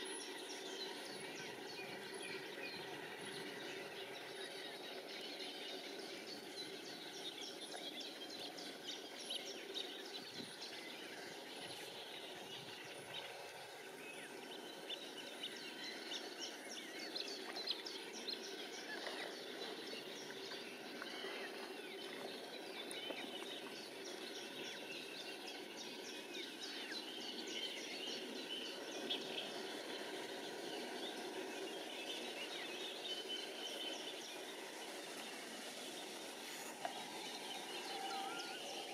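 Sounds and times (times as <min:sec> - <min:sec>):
outdoor background hiss: 0:00.0 - 0:38.9
small bird chirps and calls: 0:03.5 - 0:38.9.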